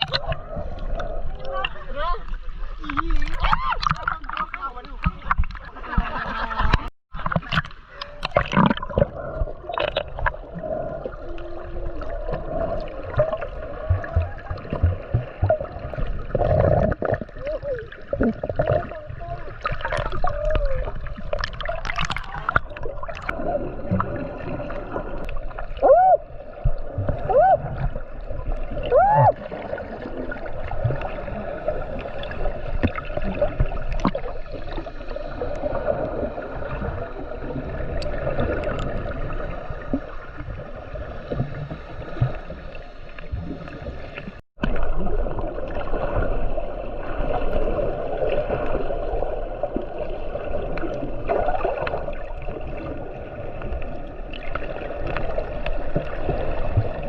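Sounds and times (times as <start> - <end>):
gurgling bubbles: 0.0 - 57.0
underwater hum: 0.0 - 57.0
underwater clicks: 2.8 - 10.5, 13.1 - 17.3, 21.1 - 23.4, 37.9 - 39.1.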